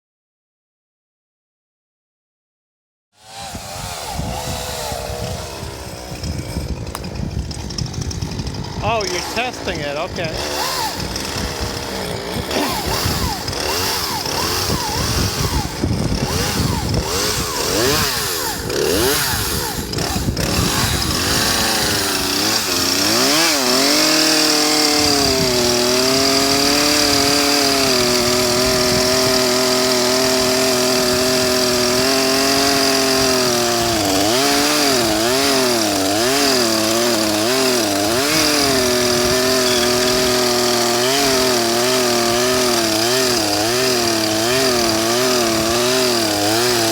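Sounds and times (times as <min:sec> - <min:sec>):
chainsaw engine running: 0:03.2 - 0:46.9.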